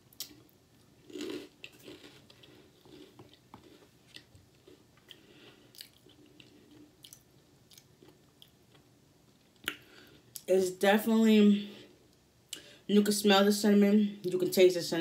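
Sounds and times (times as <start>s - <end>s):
chewing crunchy cereal: 0.1s - 8.8s.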